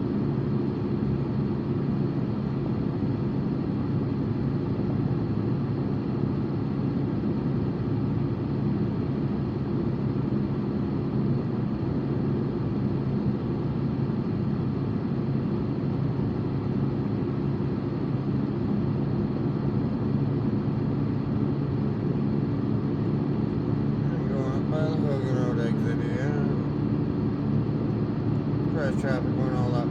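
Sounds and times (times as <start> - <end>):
car engine hum: 23.9 - 27.0, 28.6 - 29.9.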